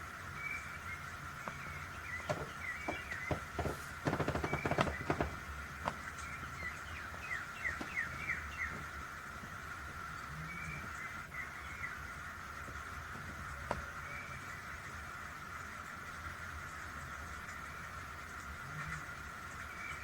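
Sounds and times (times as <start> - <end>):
bird chirps: 0.4 - 9.0
wood fire crackling and popping: 1.5 - 9.4.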